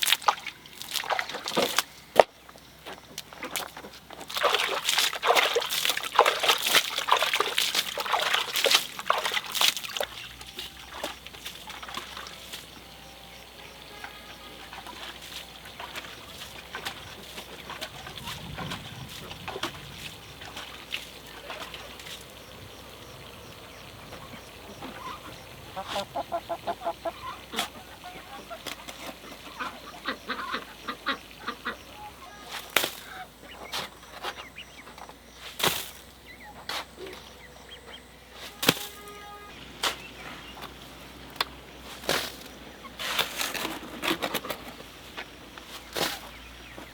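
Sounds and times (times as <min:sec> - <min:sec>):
poultry calling: 0:24.2 - 0:35.0.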